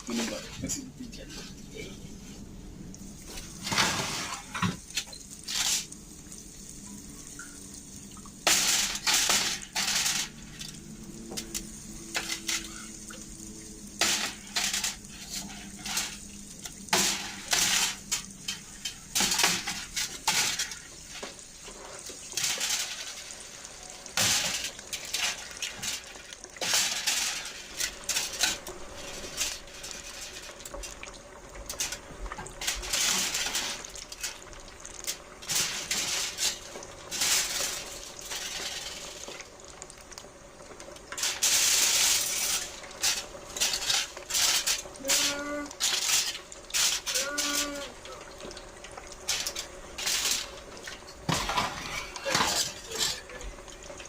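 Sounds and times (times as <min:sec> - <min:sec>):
dishes and utensils clattering: 0:03.6 - 0:05.9, 0:08.4 - 0:13.2, 0:14.0 - 0:23.4, 0:24.0 - 0:31.1, 0:31.7 - 0:34.4, 0:35.0 - 0:39.4, 0:41.1 - 0:48.6, 0:49.2 - 0:54.0.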